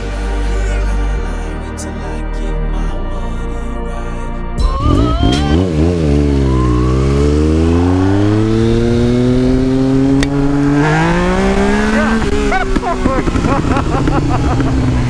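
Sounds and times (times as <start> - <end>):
motorcycle engine revving: 4.7 - 15.0.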